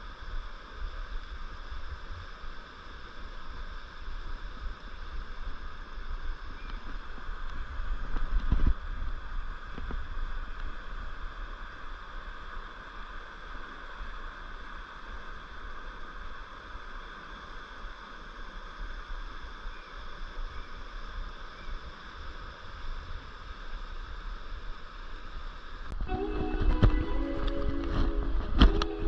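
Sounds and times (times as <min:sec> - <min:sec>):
river rushing over rocks: 0:25.2 - 0:29.0
low rumble on microphone: 0:25.6 - 0:29.0.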